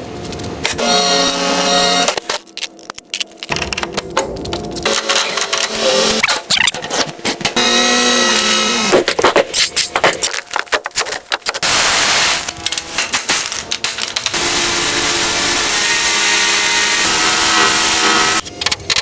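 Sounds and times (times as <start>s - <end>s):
power tool hissing: 11.6s - 12.5s, 14.4s - 18.4s.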